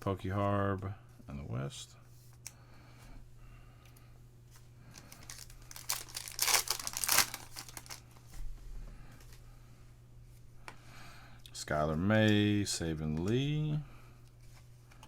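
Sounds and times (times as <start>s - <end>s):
foil wrapper crinkling and tearing: 4.9s - 8.0s.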